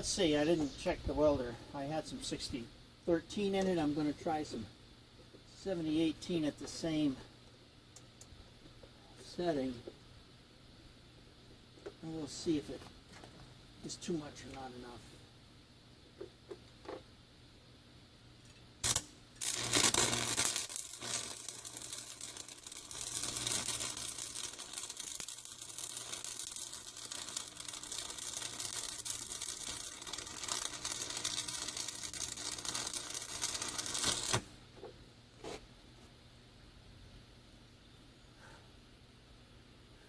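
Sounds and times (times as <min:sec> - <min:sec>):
welding arc crackling: 0:18.8 - 0:34.6.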